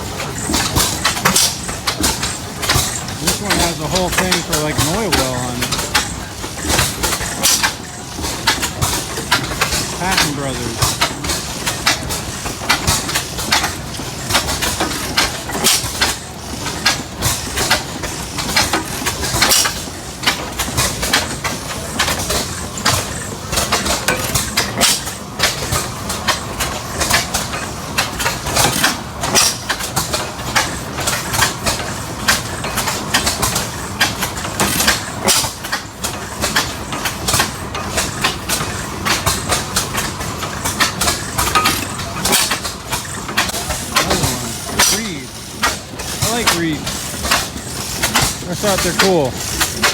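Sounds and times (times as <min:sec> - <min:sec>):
old gas engine running: 0:00.0 - 0:49.9.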